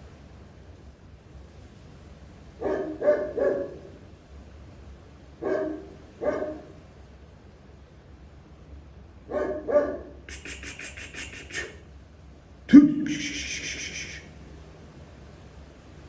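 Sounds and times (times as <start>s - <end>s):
dog barking: 2.6s - 4.0s, 5.4s - 6.8s, 9.3s - 10.2s.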